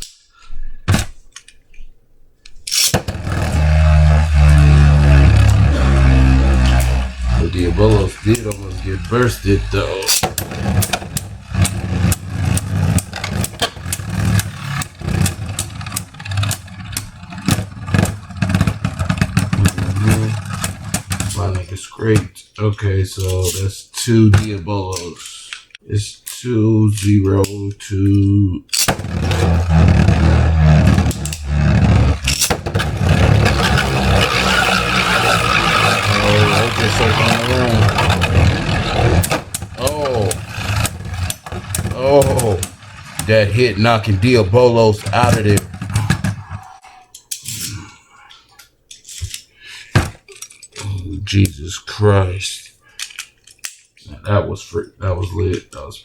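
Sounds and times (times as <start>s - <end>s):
spinning tops whirring: 2.7s - 21.5s, 28.8s - 46.5s.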